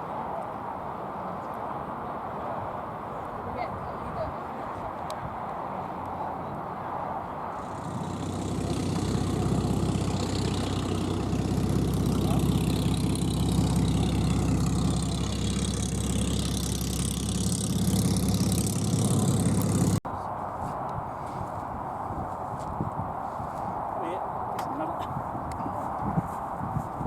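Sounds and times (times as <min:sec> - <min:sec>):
engine running: 0:07.6 - 0:20.0.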